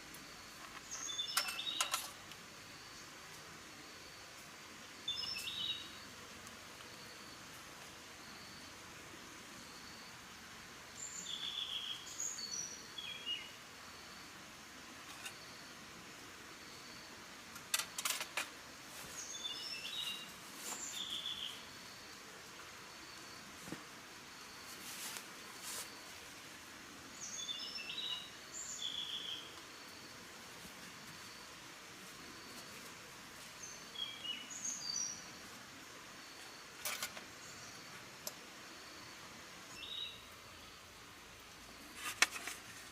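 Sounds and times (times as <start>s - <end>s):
steady background hiss: 0.0s - 42.9s
bird chirping: 0.8s - 2.2s, 5.1s - 6.1s, 11.0s - 13.6s, 19.2s - 21.7s, 27.2s - 29.6s, 39.7s - 40.8s.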